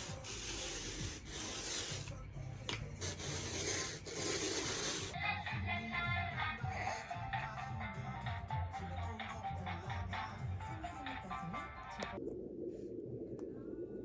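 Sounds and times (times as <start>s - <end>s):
background music: 0.0s - 12.2s.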